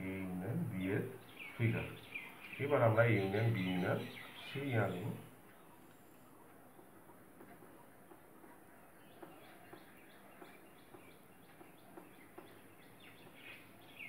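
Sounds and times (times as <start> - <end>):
bird chirps: 0.0 - 14.0.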